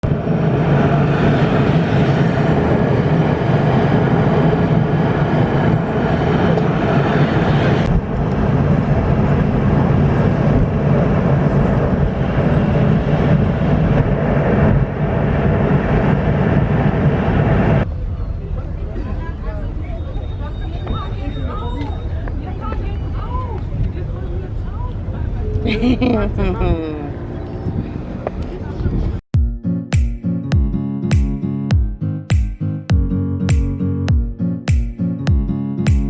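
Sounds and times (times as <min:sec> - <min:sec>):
vehicle engine rumble: 0:00.0 - 0:29.2.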